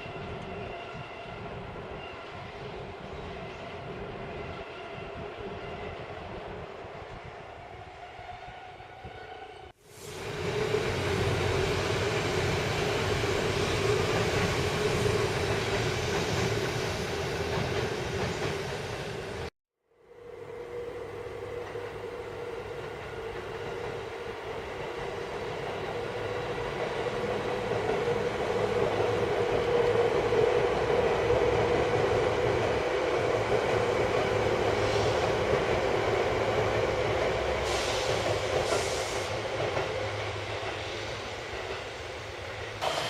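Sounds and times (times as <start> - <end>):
electric train passing: 0.0 - 43.0
short high-pitched hisses: 9.8 - 10.5, 37.6 - 39.4.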